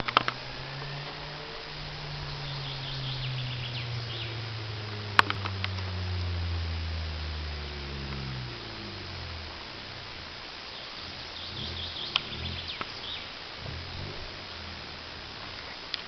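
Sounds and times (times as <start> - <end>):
car engine exhaust note: 0.0 - 16.0
faint hiss: 0.0 - 16.0
high chirps: 10.6 - 14.6.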